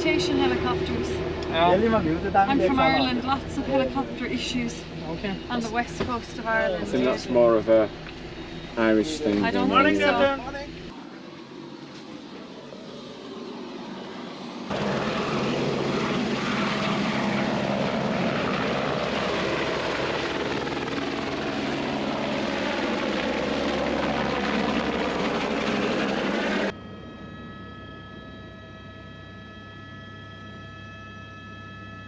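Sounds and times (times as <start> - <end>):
helicopter engine and rotor drone: 0.0 - 32.0.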